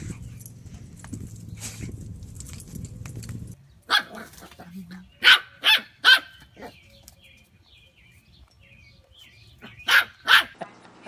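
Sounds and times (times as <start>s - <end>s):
sharp dog-like barks: 5.2s - 6.7s, 9.8s - 10.6s.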